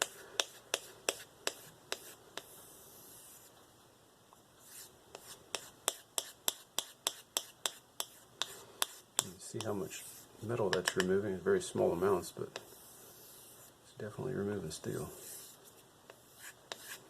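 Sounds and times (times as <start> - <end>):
soft rubbing: 0.0 - 3.7, 4.6 - 13.8, 14.8 - 17.0
knife blade stropping strokes: 15.1 - 17.0.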